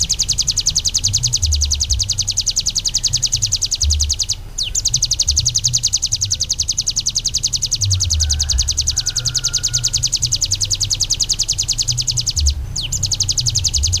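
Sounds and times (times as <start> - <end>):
low rumble: 0.0 - 7.1
songbird harsh rapid trill: 0.0 - 14.0.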